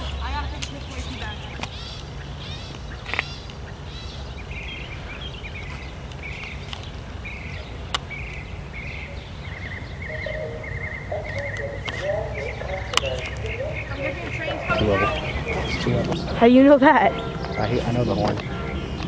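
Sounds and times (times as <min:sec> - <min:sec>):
bird chirping call: 0:00.0 - 0:19.0
bird warbling trill: 0:07.3 - 0:19.0
sharp clicks: 0:11.2 - 0:14.2.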